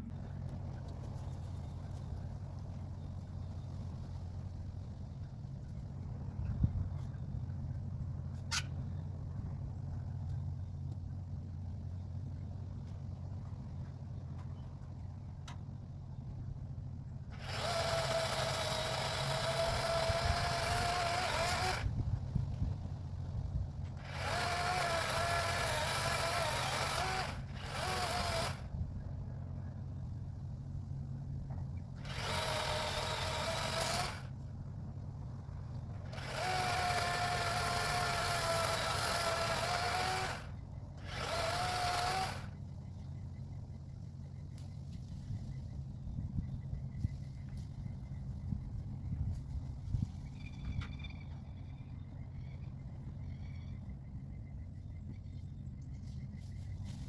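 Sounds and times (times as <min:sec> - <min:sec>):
low hum: 0:00.0 - 0:57.0
electric chainsaw whine: 0:17.2 - 0:22.0, 0:23.9 - 0:28.8, 0:31.9 - 0:34.4, 0:35.9 - 0:42.7.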